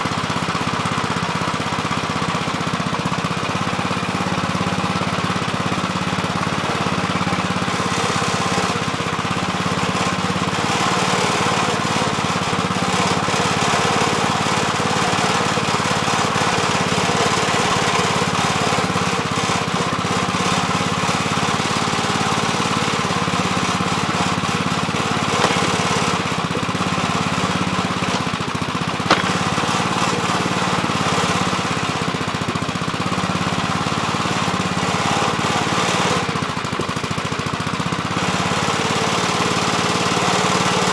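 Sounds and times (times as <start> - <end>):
backhoe engine running: 0.0 - 40.9
sharp knocks: 25.4 - 26.2, 29.1 - 29.5.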